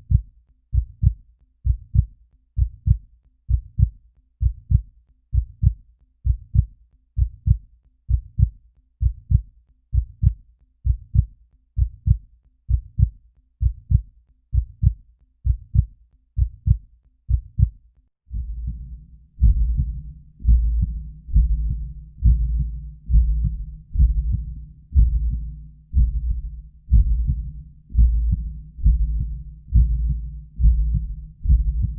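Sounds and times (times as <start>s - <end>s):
heartbeat lub-dub: 0.0s - 31.9s
muffled whooshing heartbeat: 18.3s - 31.9s.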